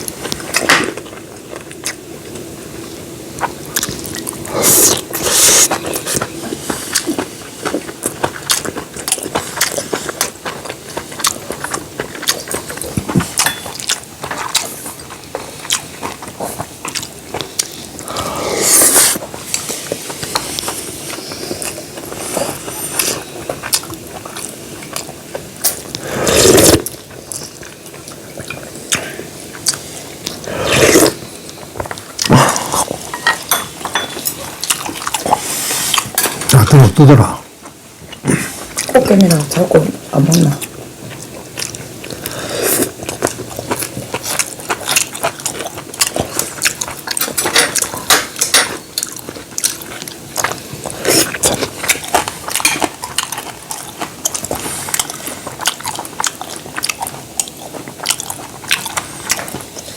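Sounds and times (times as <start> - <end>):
chewing and wet mouth sounds: 0.0 - 59.9
slurping broth: 4.4 - 7.1, 17.6 - 23.3, 25.6 - 27.0, 28.4 - 31.4, 41.6 - 44.6.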